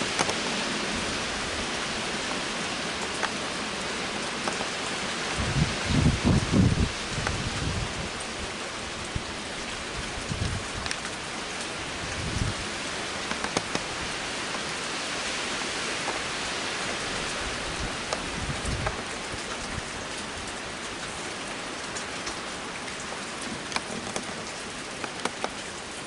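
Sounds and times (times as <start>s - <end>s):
heavy rain falling: 0.0s - 26.0s
wind buffeting microphone: 5.3s - 11.1s, 11.8s - 14.3s, 16.0s - 20.6s.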